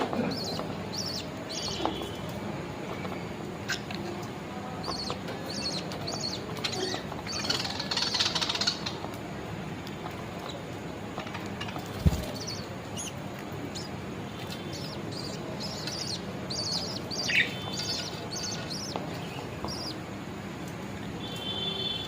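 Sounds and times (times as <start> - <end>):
buzzy budgie chatter: 0.0 - 2.2, 4.8 - 9.1, 10.0 - 20.0
budgies chirping: 0.0 - 9.2, 10.0 - 20.1.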